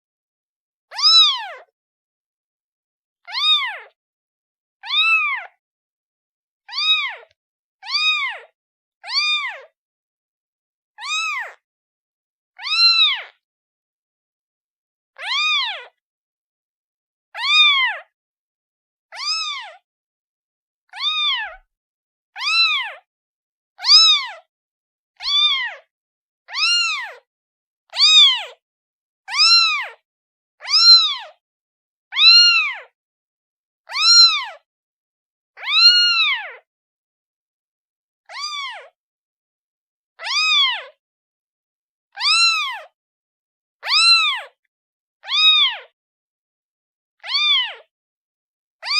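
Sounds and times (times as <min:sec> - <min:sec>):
kitten meowing: 0:00.9 - 0:01.7, 0:03.2 - 0:04.0, 0:04.8 - 0:05.6, 0:06.7 - 0:09.7, 0:11.0 - 0:11.6, 0:12.6 - 0:13.4, 0:15.2 - 0:16.0, 0:17.4 - 0:18.1, 0:19.1 - 0:19.8, 0:20.9 - 0:21.6, 0:22.4 - 0:23.1, 0:23.8 - 0:24.4, 0:25.2 - 0:25.8, 0:26.5 - 0:27.2, 0:27.9 - 0:28.5, 0:29.3 - 0:30.0, 0:30.6 - 0:31.4, 0:32.1 - 0:32.9, 0:33.9 - 0:34.6, 0:35.6 - 0:36.6, 0:38.3 - 0:39.0, 0:40.2 - 0:40.9, 0:42.2 - 0:43.0, 0:43.8 - 0:44.5, 0:45.2 - 0:45.9, 0:47.2 - 0:47.8.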